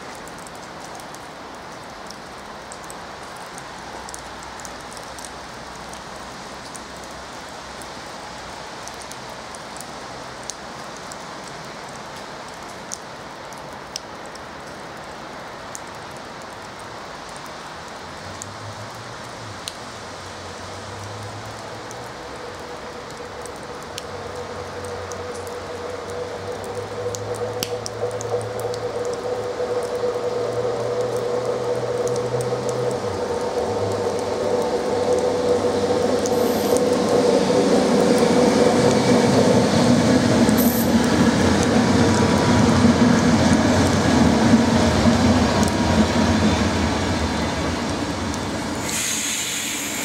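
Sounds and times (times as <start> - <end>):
steady hiss like light rain: 0.0 - 50.0
train low hum: 22.1 - 50.0
sharp ticks: 40.5 - 41.7
faint steady tone: 40.6 - 41.0.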